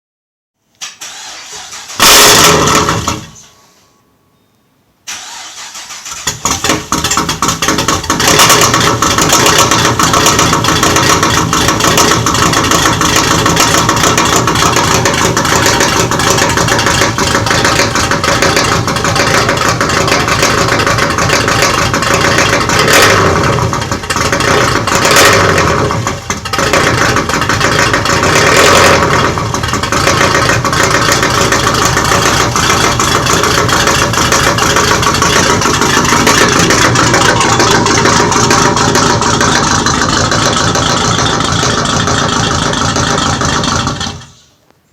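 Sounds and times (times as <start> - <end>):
short loud burst: 0.8 - 4.0
lumpy car engine running: 6.2 - 44.5.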